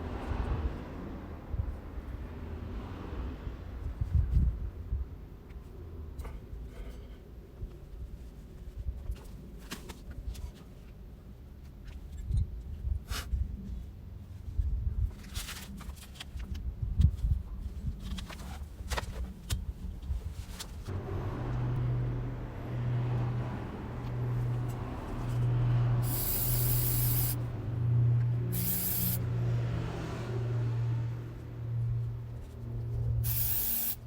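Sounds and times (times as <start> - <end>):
motor humming: 24.0 - 27.5, 28.5 - 29.2
short hissing sprays: 26.0 - 27.4, 28.5 - 29.2, 33.2 - 34.0.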